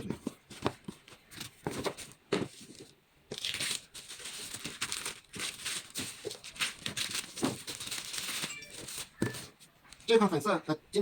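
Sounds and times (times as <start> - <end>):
packaging crinkling and rustling: 0.1 - 10.2.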